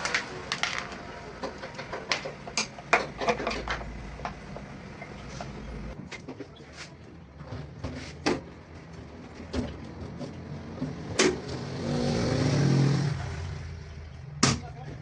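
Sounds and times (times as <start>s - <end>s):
objects clicking and knocking: 0.0s - 6.6s.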